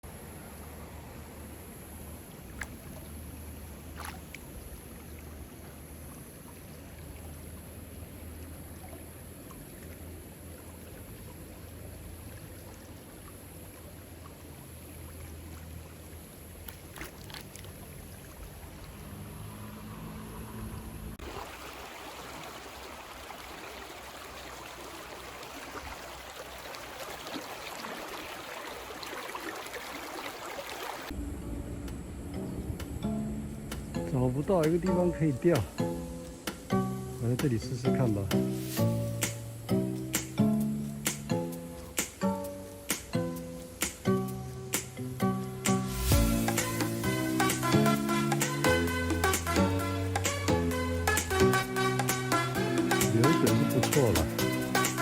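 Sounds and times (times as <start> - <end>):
creek water flowing: 0.0 - 55.0
steady low rumble: 31.1 - 37.9.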